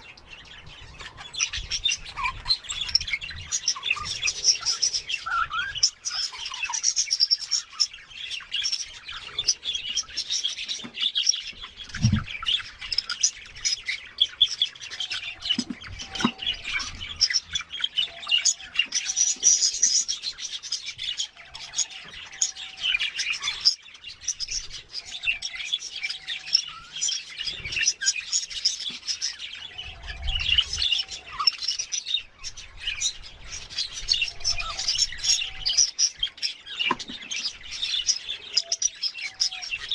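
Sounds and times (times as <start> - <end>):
budgerigars chattering and chirping: 0.0 - 39.9
low thumps: 12.0 - 12.3.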